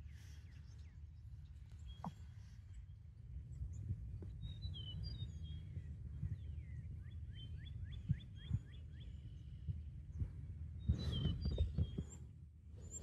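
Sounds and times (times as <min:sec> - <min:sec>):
birds chirping: 0:00.0 - 0:13.0
low microphone rumble: 0:00.0 - 0:13.0.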